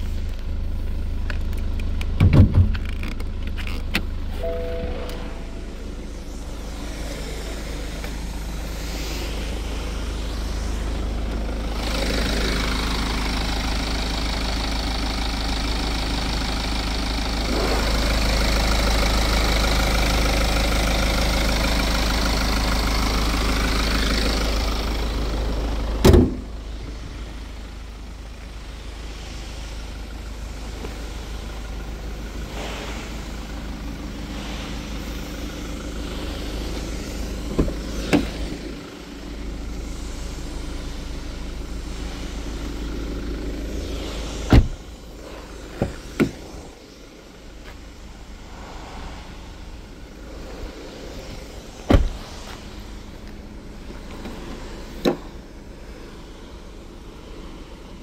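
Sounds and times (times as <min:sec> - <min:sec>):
diesel engine idling: 0:00.0 - 0:58.0
loud thump: 0:02.2 - 0:02.8, 0:26.0 - 0:26.4, 0:44.5 - 0:44.8, 0:51.8 - 0:52.3.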